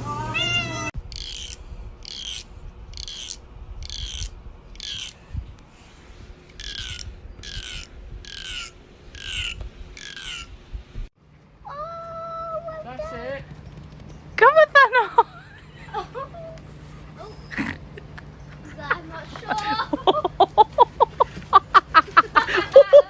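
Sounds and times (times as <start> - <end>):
bird harsh calls: 1.1 - 5.2, 6.5 - 10.6.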